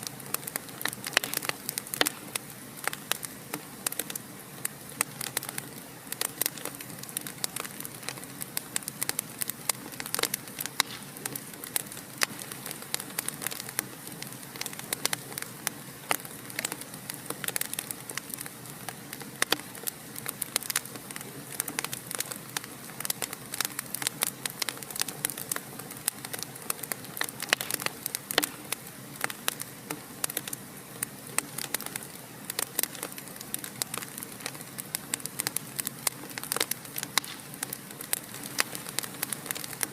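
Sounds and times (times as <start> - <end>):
fireplace fire crackling: 0.0 - 39.9.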